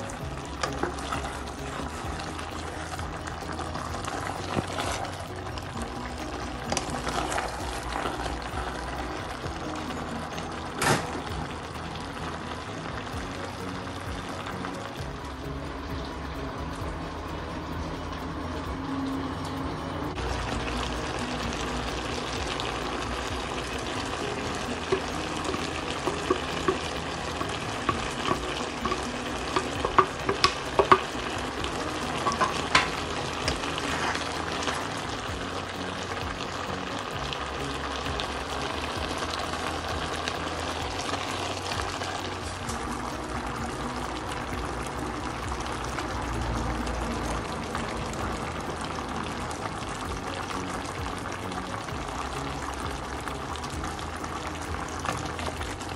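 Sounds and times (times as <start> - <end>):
tripe sizzling in a pot: 0.0 - 55.9
wooden spoon knocking on pot: 24.8 - 31.1, 32.2 - 33.7.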